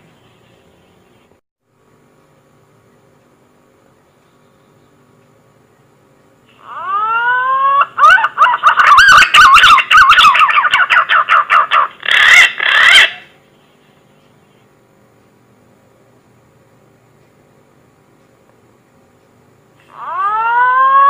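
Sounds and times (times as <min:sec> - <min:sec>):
green pigeon whistling call: 0:06.6 - 0:13.3, 0:19.9 - 0:21.0.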